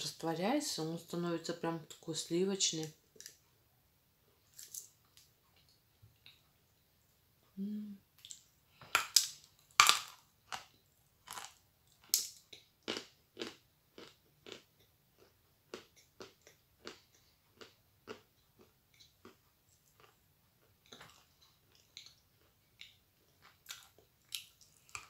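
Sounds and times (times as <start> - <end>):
close-up chewing: 9.7 - 25.0
biting crunchy cookie: 11.3 - 20.2.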